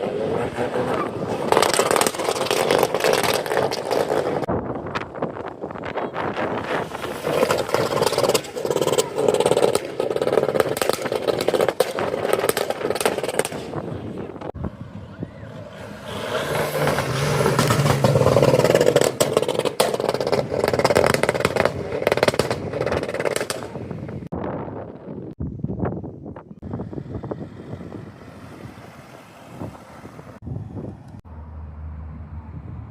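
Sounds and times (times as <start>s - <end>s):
car engines running: 0.0s - 24.3s.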